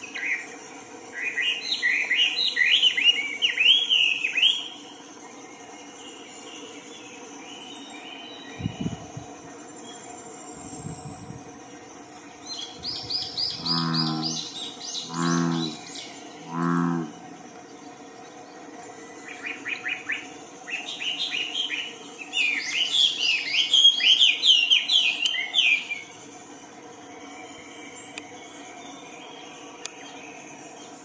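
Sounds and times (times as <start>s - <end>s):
insect drone: 0.0s - 31.0s
birds chirping and whistling: 1.2s - 4.8s, 6.1s - 31.0s
short low bird calls: 13.4s - 17.3s.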